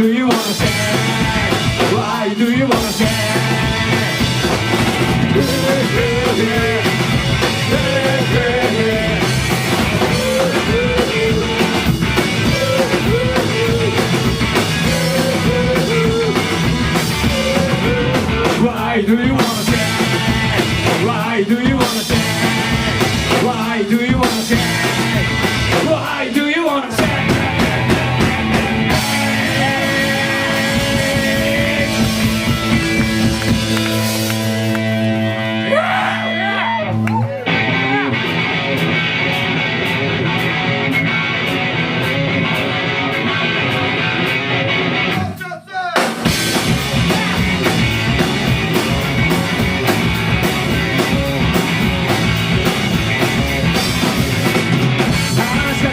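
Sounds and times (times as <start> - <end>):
sung or shouted vocals: 0.0 - 38.4, 45.0 - 47.5, 55.0 - 55.9
bass guitar: 0.0 - 45.4, 46.0 - 55.9
distorted electric guitars: 0.0 - 45.4, 46.0 - 55.9
drums: 0.0 - 55.9.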